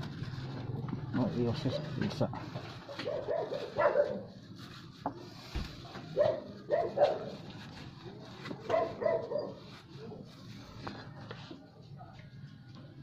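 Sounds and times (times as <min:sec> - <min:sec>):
dog barking: 0:03.0 - 0:04.3, 0:06.2 - 0:07.4, 0:08.7 - 0:09.6.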